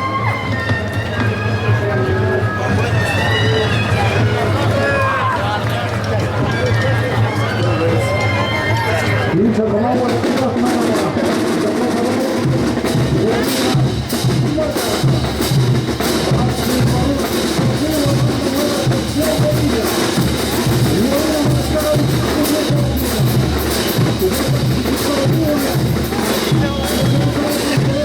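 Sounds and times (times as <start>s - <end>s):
brass band wind melody: 0.0s - 28.0s
sharp percussion strokes: 9.3s - 28.0s
bass drum beat: 12.3s - 28.0s.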